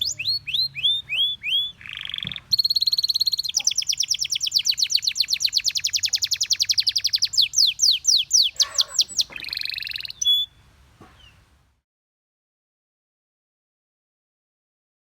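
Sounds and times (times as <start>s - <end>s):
canary singing trills: 0.0s - 11.4s.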